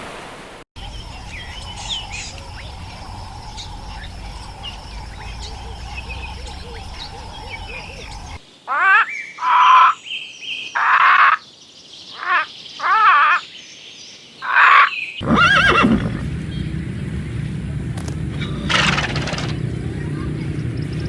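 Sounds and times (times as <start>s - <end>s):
steady low rumble: 0.8s - 8.4s
horse whinnying: 15.2s - 16.2s, 18.3s - 19.6s
short wavering animal calls: 18.4s - 19.6s.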